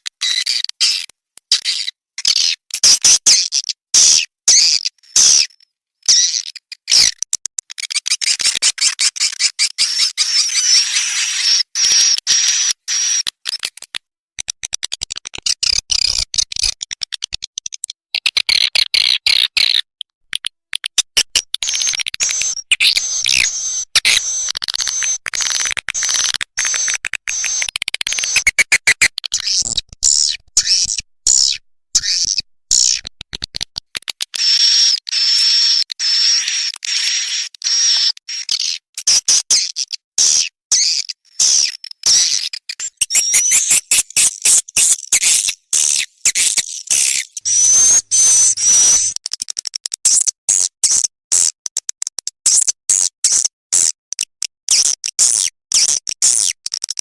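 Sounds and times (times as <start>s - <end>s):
swiftlet chirps and twitters: 21.2s - 33.0s, 40.8s - 49.2s.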